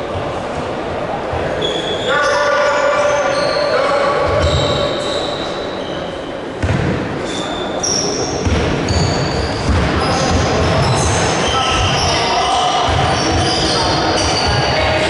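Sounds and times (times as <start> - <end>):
shoes squeaking: 1.6 - 6.4, 7.2 - 15.0
basketball bouncing on court: 6.6 - 7.0, 8.4 - 12.1, 12.8 - 15.0.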